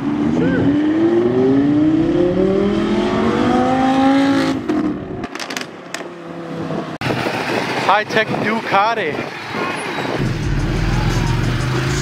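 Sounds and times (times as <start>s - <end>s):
vehicle engine accelerating: 0.0s - 7.9s, 10.1s - 12.0s
steady engine note: 0.4s - 5.2s.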